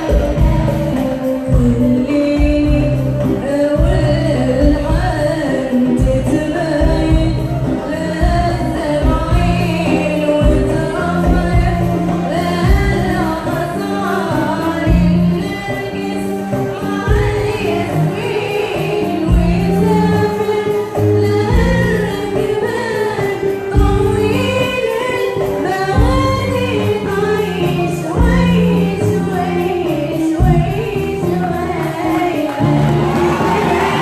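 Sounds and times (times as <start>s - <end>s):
choir singing with accompaniment: 0.0s - 34.0s.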